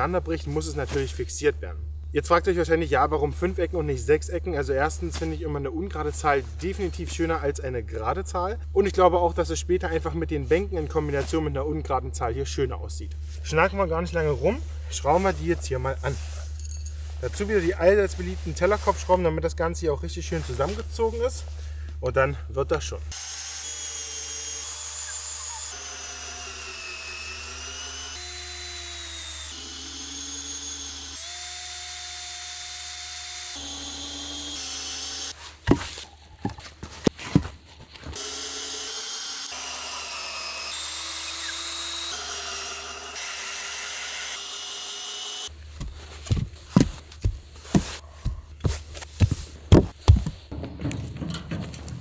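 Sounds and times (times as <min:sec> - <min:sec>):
power drill motor whining: 0:23.1 - 0:35.4, 0:38.2 - 0:45.5.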